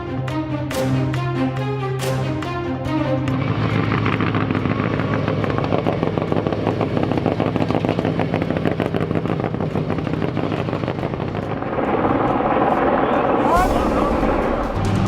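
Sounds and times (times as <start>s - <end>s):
race vehicle engine at high revs: 2.4s - 13.3s.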